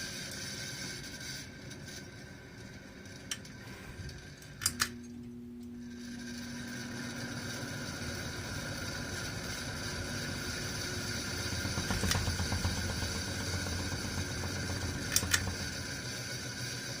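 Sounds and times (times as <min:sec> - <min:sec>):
machine whirring with bad bearings: 0:05.8 - 0:17.0.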